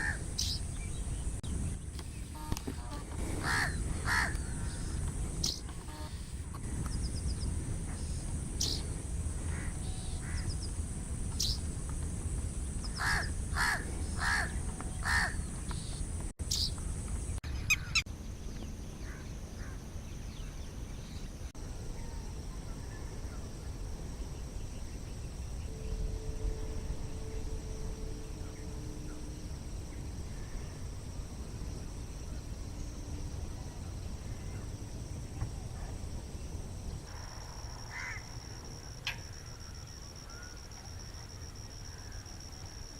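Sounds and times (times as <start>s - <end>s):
bird calls: 0.0s - 10.7s, 12.7s - 19.8s
high whine: 0.0s - 42.9s
steady low rumble: 0.0s - 42.9s.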